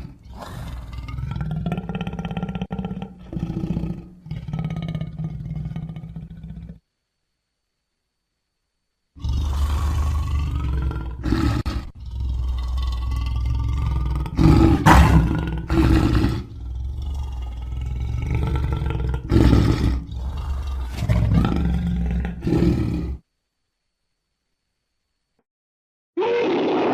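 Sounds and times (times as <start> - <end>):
creature growling roar: 0.0 - 6.8, 9.2 - 23.2, 26.2 - 26.9.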